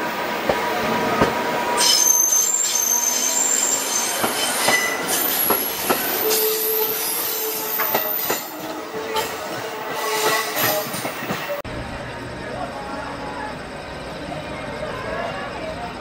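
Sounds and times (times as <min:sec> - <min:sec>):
train wheels squealing: 0:01.8 - 0:11.1.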